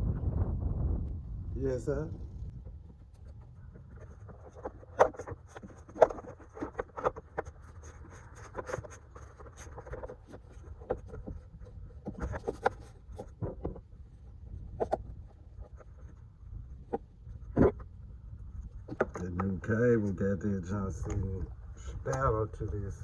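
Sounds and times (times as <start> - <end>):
steady low rumble: 0.0 - 5.9.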